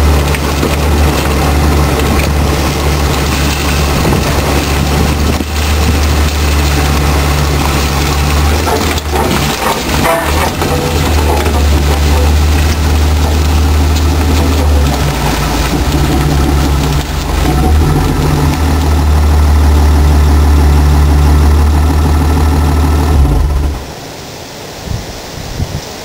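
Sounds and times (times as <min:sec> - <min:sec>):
car engine idling: 0:00.0 - 0:24.1
small knocks: 0:00.1 - 0:19.0.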